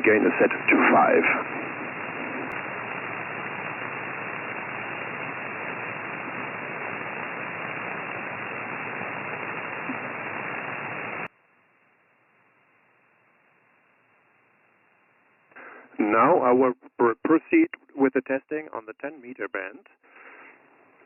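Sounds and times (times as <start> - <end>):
radio static: 0.0 - 11.3, 15.5 - 19.9.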